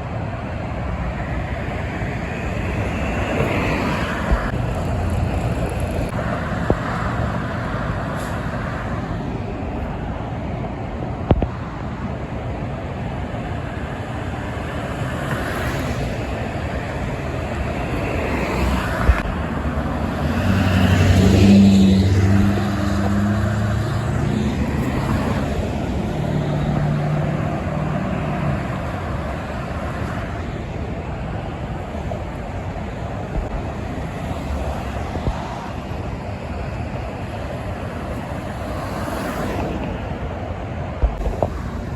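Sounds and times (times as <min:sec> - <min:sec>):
highway traffic noise: 0:00.0 - 0:41.9
heavy truck passing: 0:14.9 - 0:36.6.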